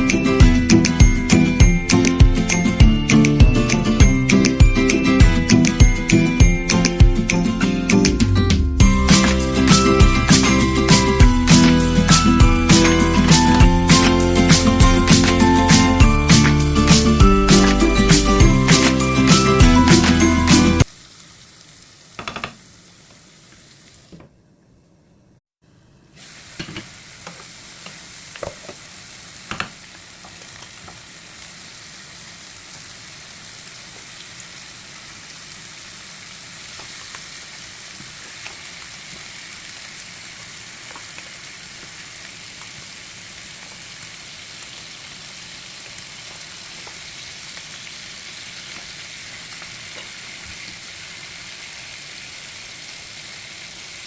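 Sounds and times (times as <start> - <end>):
food sizzling in a pan: 8.8 - 24.2, 25.8 - 54.0
sharp knocks against a pan: 22.2 - 22.6, 29.5 - 29.7.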